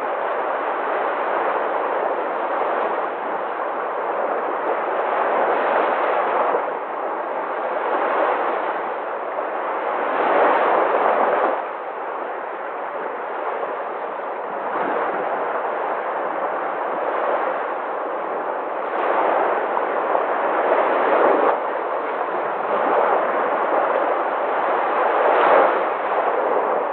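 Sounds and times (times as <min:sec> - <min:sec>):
sea waves washing ashore: 0:00.0 - 0:26.9.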